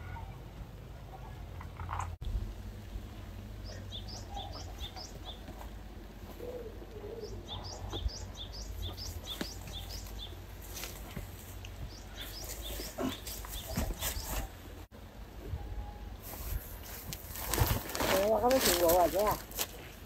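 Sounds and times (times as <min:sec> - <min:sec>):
small bird chirping: 0:03.6 - 0:05.5, 0:06.4 - 0:10.8, 0:11.5 - 0:14.6.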